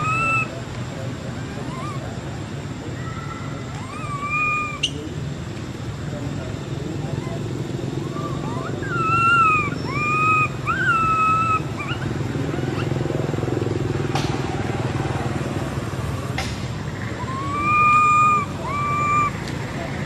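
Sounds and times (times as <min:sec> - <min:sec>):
baby monkey wailing: 0:00.0 - 0:00.6, 0:01.3 - 0:02.4, 0:03.0 - 0:04.9, 0:07.1 - 0:13.2, 0:17.0 - 0:19.5.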